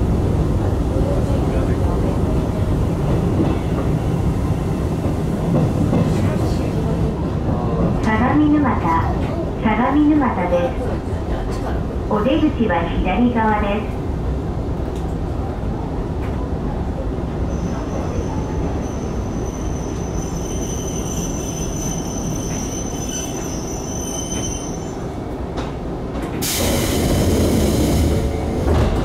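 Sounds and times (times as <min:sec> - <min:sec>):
electric train rumbling past: 0:00.0 - 0:29.0
high wheel squeal: 0:17.5 - 0:25.0
loud hiss of air: 0:26.4 - 0:28.3.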